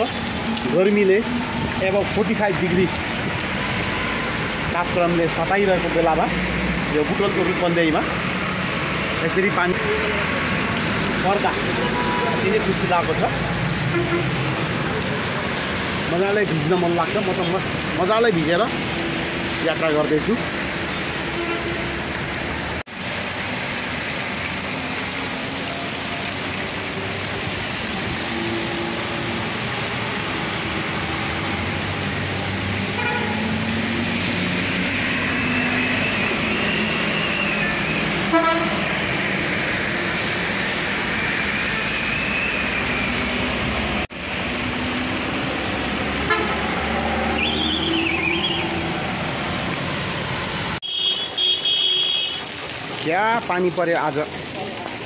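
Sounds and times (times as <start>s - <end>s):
rain hissing: 0.0s - 55.0s
vehicles passing: 0.0s - 55.0s
car horns tooting: 13.8s - 14.4s, 21.3s - 22.0s, 32.9s - 33.5s, 38.2s - 38.9s, 46.3s - 46.7s, 50.8s - 52.5s.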